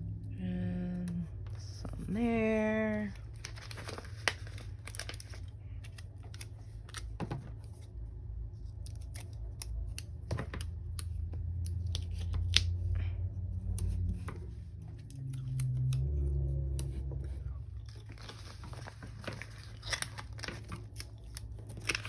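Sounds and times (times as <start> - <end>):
low room hum: 0.0 - 22.0
sticker sheets crinkling: 1.4 - 7.9, 13.6 - 22.0.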